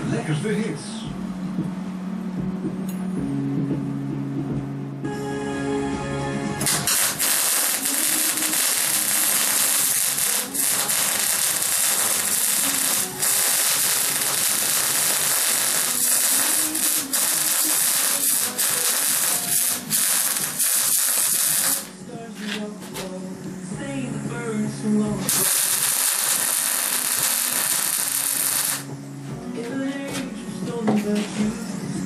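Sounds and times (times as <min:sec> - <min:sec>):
pulse jet engine rasping hiss: 0:06.7 - 0:21.9.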